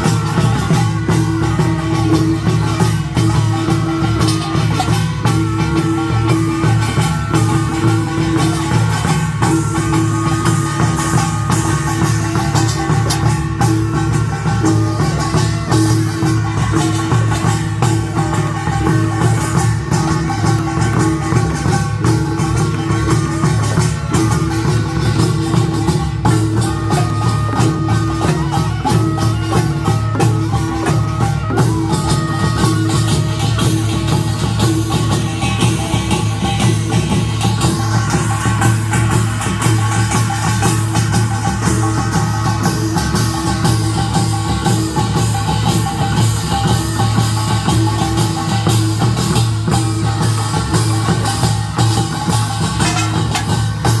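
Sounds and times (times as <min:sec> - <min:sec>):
small gongs: 0:00.0 - 0:54.0
steady drumming: 0:00.0 - 0:54.0
high wavering melody: 0:04.0 - 0:34.8
stepped melody line: 0:20.1 - 0:33.4.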